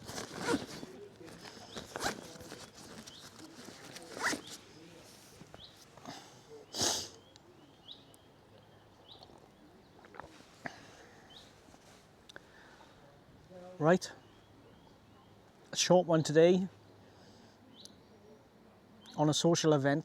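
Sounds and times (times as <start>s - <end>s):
zip being pulled: 0.0s - 4.6s.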